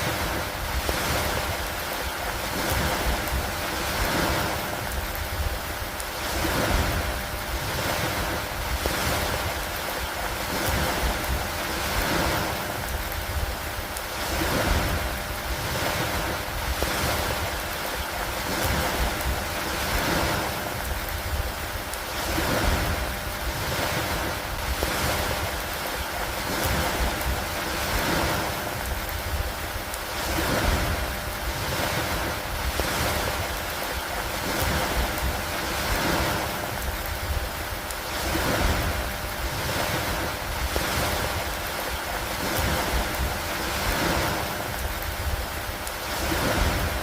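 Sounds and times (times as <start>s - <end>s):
steady rain: 0.0s - 47.0s
wind: 0.0s - 47.0s.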